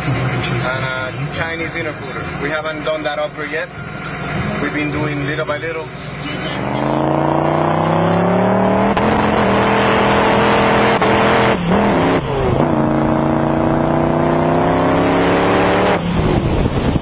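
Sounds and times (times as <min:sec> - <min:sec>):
engine revving at high revs: 0:06.4 - 0:17.0.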